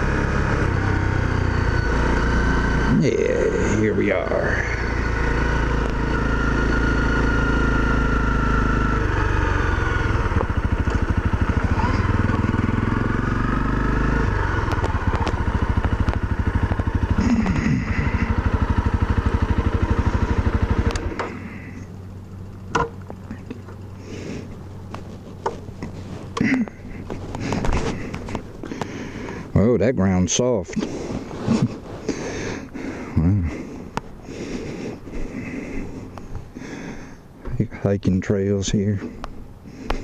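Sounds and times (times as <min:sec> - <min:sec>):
motorcycle engine idling: 0:00.0 - 0:40.0
sharp clicks and knocks: 0:22.7 - 0:23.8, 0:24.9 - 0:26.4.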